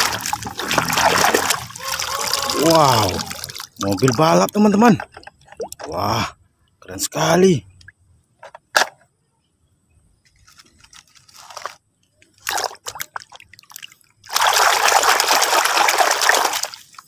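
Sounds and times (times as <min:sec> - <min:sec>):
steady rush of water: 0:00.0 - 0:04.6
water splashing and sloshing: 0:00.0 - 0:06.1, 0:11.4 - 0:17.0.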